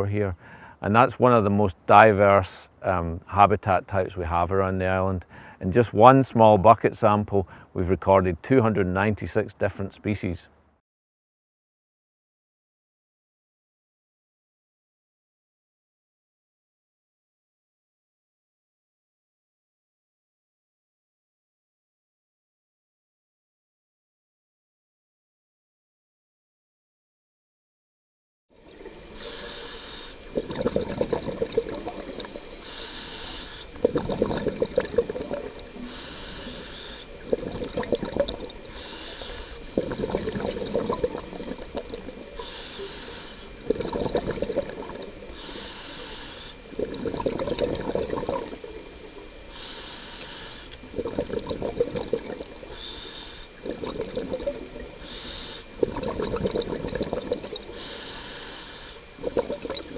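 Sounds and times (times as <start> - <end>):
hissing regulator inhale: 0.4 - 0.8, 28.8 - 59.6
bubbling exhaled air: 28.6 - 59.9.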